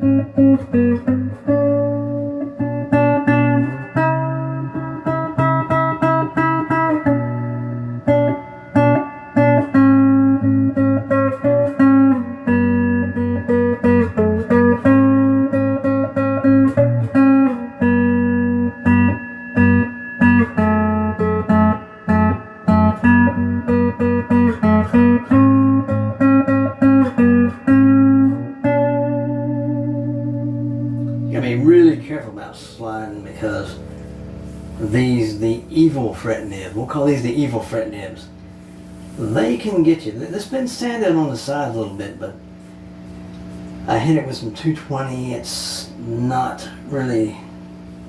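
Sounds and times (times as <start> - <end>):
clean electric guitar playing: 0.0 - 48.0.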